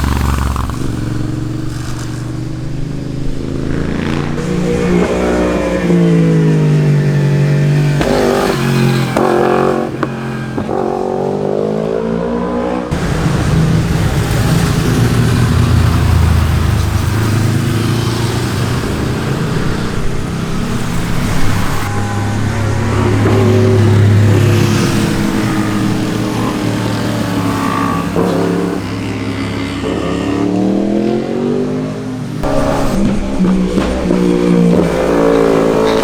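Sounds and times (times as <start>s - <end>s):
rough motorcycle engine: 0.0s - 36.0s
sport motorcycle engine revving: 0.0s - 36.0s.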